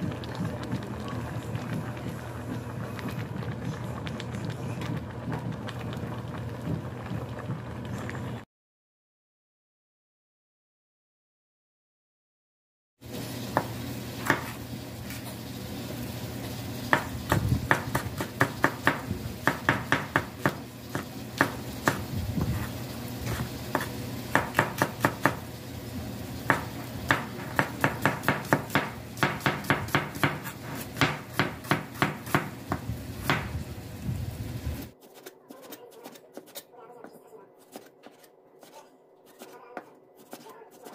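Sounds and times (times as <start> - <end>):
knife chopping on wooden board: 13.6 - 14.6, 16.9 - 22.7, 23.3 - 25.4, 26.5 - 33.5, 35.0 - 36.7, 37.6 - 40.9.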